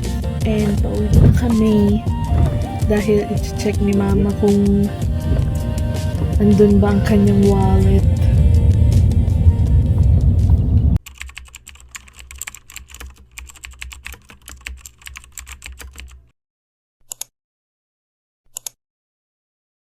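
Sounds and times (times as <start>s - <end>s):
loud music: 0.0s - 11.0s.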